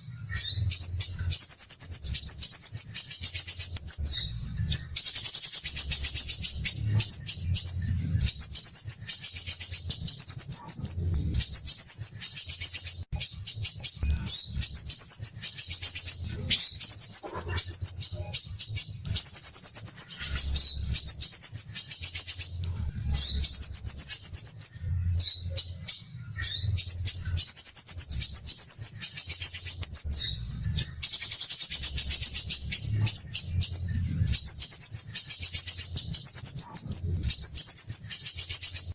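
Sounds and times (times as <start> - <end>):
bird singing harsh trills: 0.0 - 38.9
low hum: 3.5 - 21.5, 22.4 - 28.9, 29.7 - 34.8.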